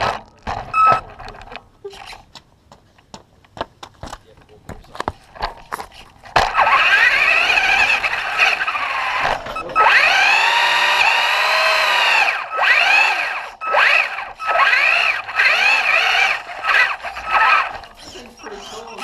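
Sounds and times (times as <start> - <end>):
electric motor whining: 0.0 - 1.6, 6.3 - 19.0.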